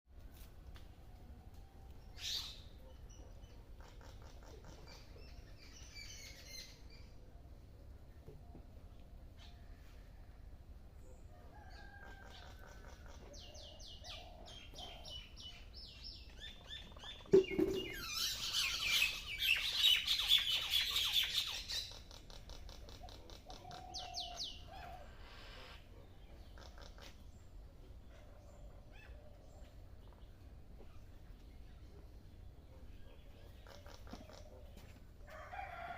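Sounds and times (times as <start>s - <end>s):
small birds chirping: 11.0s - 35.0s
harsh dense bird chattering: 25.2s - 27.3s.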